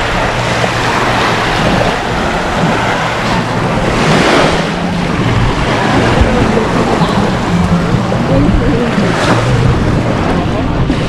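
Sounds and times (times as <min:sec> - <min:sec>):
sea waves washing ashore: 0:00.0 - 0:11.0
wind rumbling on microphone: 0:00.0 - 0:11.0.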